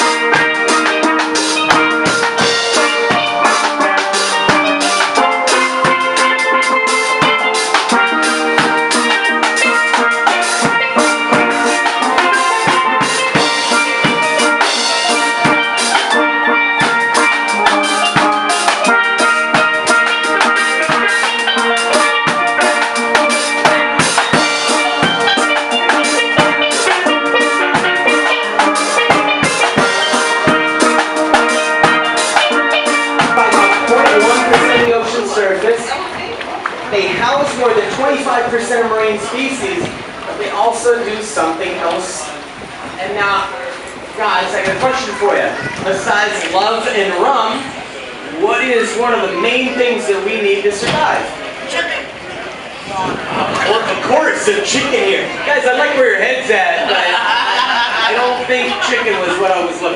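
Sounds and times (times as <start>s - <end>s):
drum kit beat: 0.0s - 40.8s
steel drum music: 0.0s - 59.9s.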